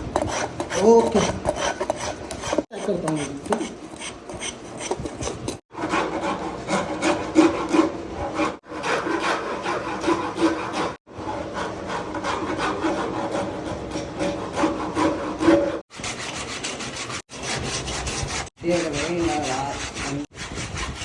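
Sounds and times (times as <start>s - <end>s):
hand sanding wood scraping: 0.0s - 21.0s.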